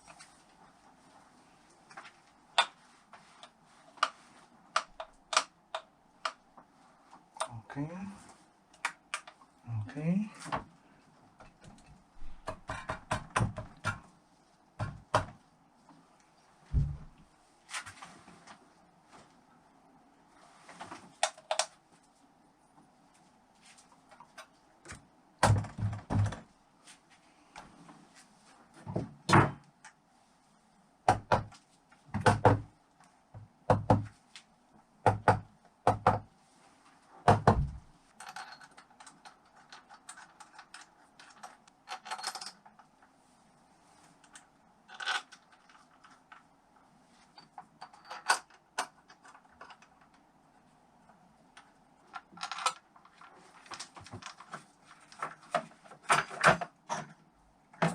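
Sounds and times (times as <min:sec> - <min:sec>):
metal clicks and clinks: 0:38.2 - 0:42.6.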